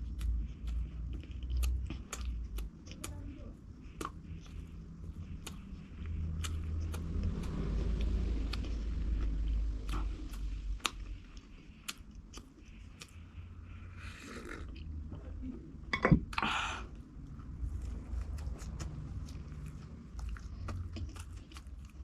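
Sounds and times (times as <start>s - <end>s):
wet mouth clicks: 0.0s - 3.2s, 3.8s - 13.2s
person chewing food: 0.0s - 15.4s, 16.3s - 22.0s.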